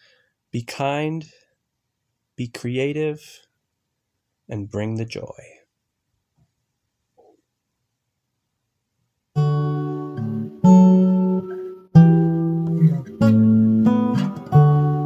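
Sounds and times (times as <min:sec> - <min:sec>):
acoustic guitar strumming chords: 0:09.4 - 0:15.0.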